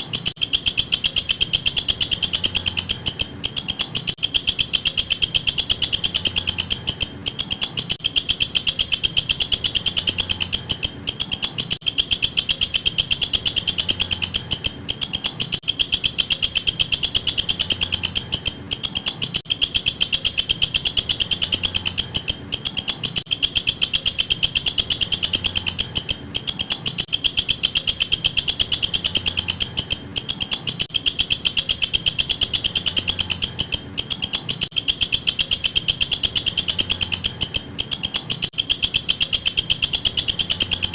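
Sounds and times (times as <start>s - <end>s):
katydid stridulating: 0.0s - 40.9s.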